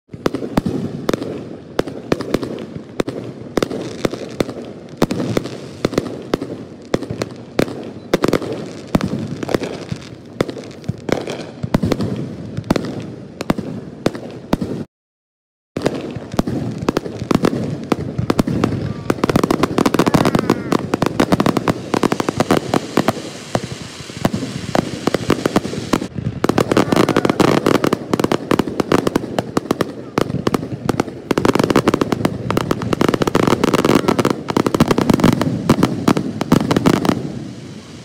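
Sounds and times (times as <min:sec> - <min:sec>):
firework shells bursting: 0:15.8 - 0:38.0.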